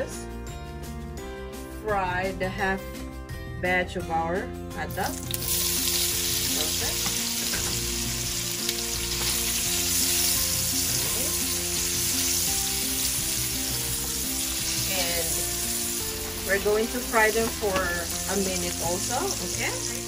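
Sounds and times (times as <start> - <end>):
hot dogs sizzling in oil: 5.1 - 20.0.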